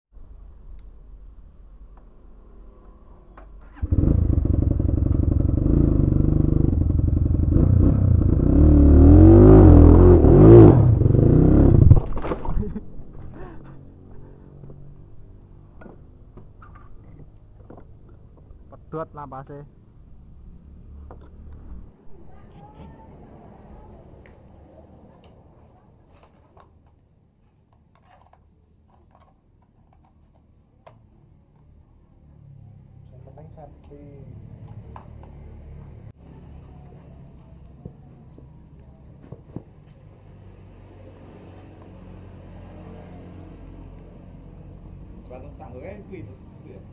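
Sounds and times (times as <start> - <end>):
motorcycle engine revving: 3.6 - 12.7
low hum: 3.8 - 15.5.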